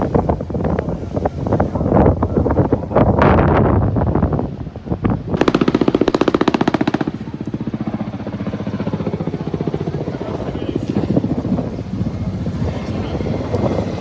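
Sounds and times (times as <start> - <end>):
wind buffeting microphone: 0.0 - 14.0
helicopter rotor chopping: 5.3 - 14.0.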